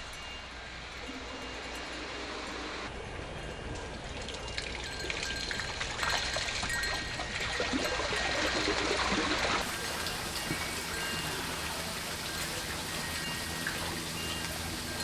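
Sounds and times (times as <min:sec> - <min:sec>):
pond waterfall splashing: 0:04.1 - 0:15.0.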